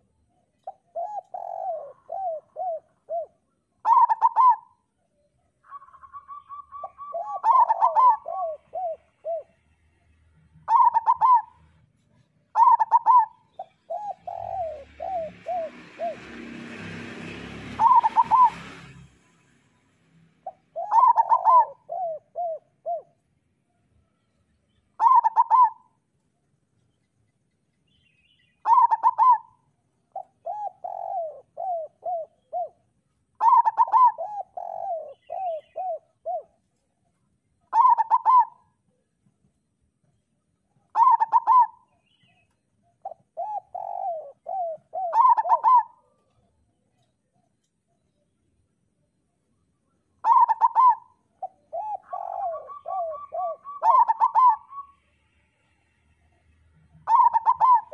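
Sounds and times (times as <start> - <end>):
dove cooing: 0.0 - 4.9, 5.6 - 9.7, 10.6 - 19.0, 20.4 - 23.2, 24.9 - 26.0, 28.6 - 37.0, 37.7 - 39.2, 40.8 - 47.4, 50.2 - 55.0, 57.0 - 57.9.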